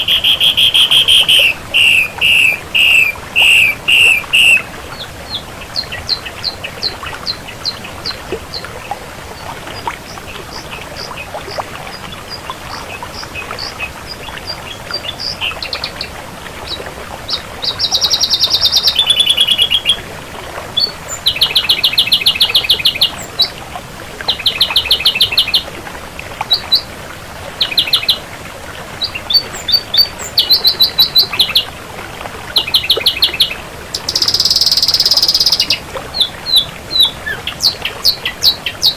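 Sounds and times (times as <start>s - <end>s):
bird singing: 0.0s - 8.6s, 17.3s - 20.0s, 29.0s - 31.7s, 32.6s - 38.9s.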